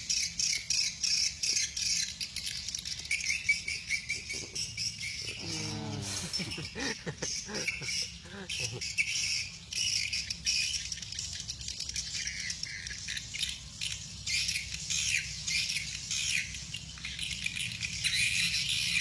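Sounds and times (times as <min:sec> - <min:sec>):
steady low hum: 0:04.0 - 0:09.2.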